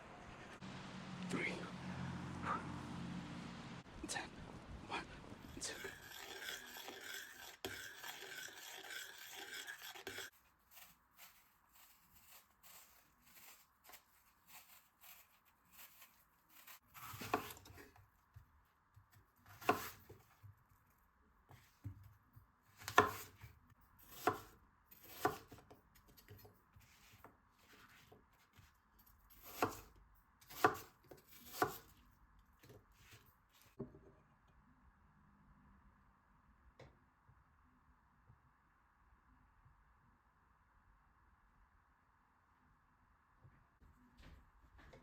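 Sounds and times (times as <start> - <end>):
knife chopping on cutting board: 17.0 - 17.8, 19.5 - 20.0, 22.8 - 23.5, 24.1 - 25.6, 29.4 - 29.9, 30.5 - 31.9.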